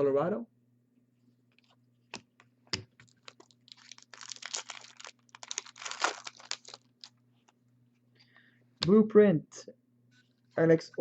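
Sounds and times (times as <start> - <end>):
foil wrapper tearing and crinkling: 3.1 - 7.1.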